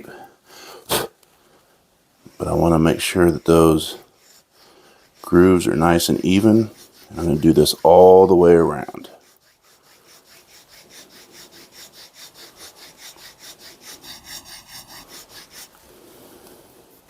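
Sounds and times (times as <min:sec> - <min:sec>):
file rasping on wood: 0:02.3 - 0:15.8.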